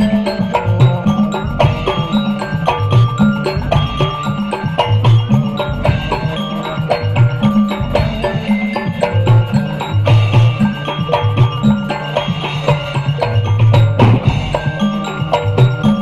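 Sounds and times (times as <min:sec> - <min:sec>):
frame drums beating fast rhythm: 0:00.0 - 0:16.0
melodic line: 0:00.0 - 0:16.0.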